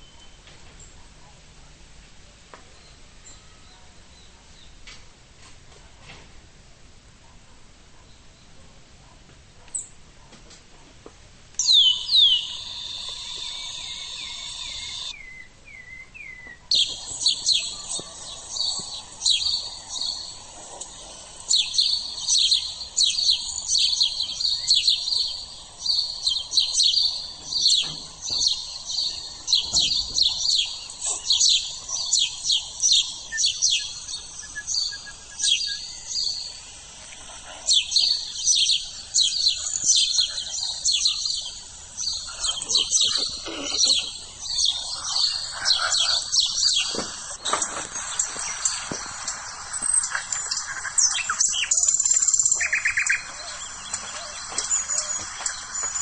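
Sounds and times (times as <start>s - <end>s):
chorus of bird chirps: 0.0s - 1.3s, 2.6s - 4.8s, 11.6s - 56.0s
high bird trill: 11.6s - 56.0s.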